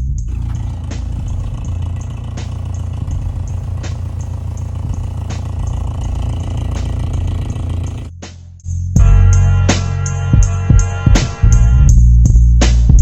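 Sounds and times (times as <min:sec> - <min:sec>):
engine idling: 0:00.3 - 0:08.1.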